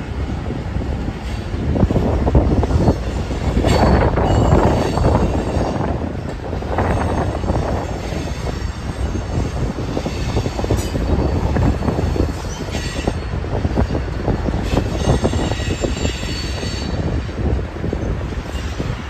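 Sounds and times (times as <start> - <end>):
train wheels clattering on track: 0.0 - 19.0
high-pitched wheel squeal: 2.6 - 6.0, 14.7 - 17.2.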